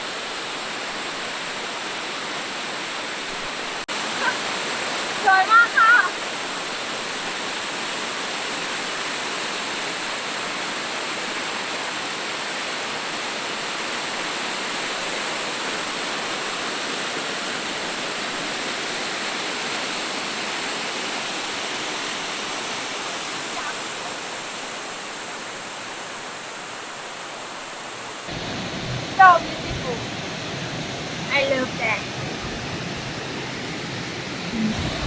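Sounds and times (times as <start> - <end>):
waterfall pouring: 28.3 - 35.0.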